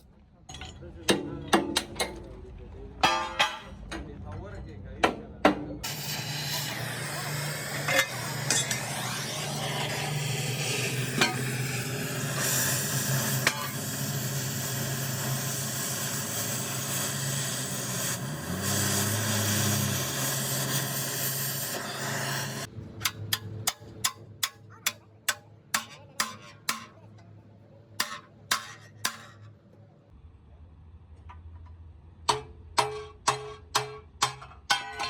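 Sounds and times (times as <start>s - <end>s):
machine humming and hissing: 5.8s - 22.8s.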